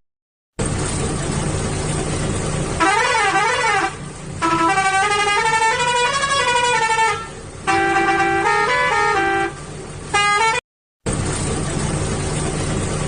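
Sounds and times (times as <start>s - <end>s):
truck engine running: 0.6s - 13.0s
musical vehicle horn: 2.8s - 10.6s.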